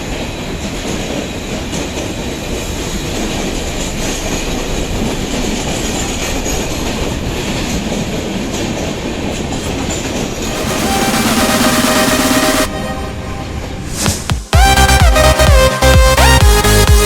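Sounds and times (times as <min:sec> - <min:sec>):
steady tones: 0:10.4 - 0:15.0.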